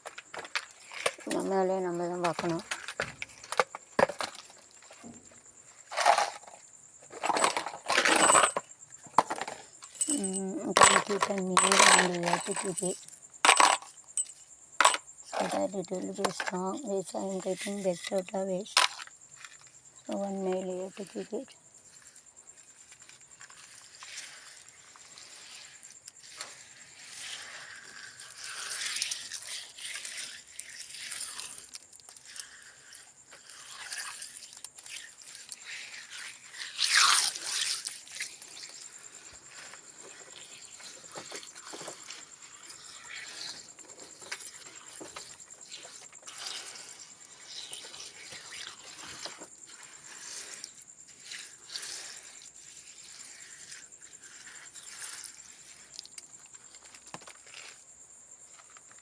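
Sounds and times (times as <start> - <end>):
scraping rubbing and rustling: 0.0 - 16.7.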